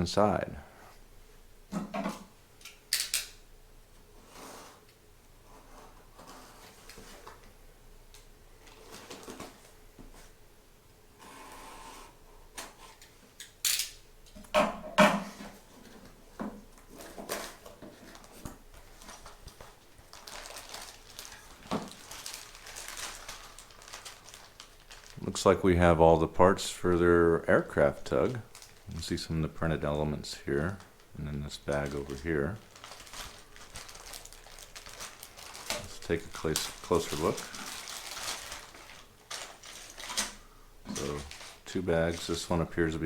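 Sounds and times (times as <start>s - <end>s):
packaging rustling: 16.7s - 25.5s, 28.0s - 29.1s, 29.8s - 42.8s.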